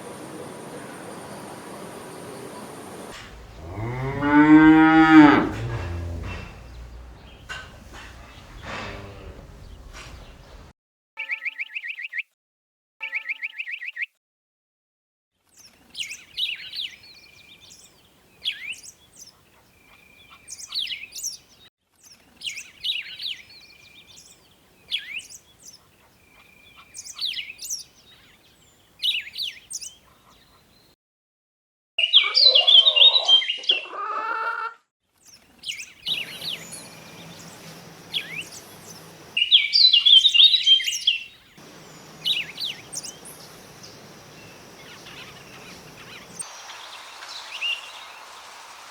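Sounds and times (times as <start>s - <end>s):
steady background noise: 0.0s - 4.4s, 5.4s - 10.7s, 36.1s - 39.5s, 41.3s - 47.3s
birds chirping: 0.0s - 10.7s, 35.7s - 48.7s.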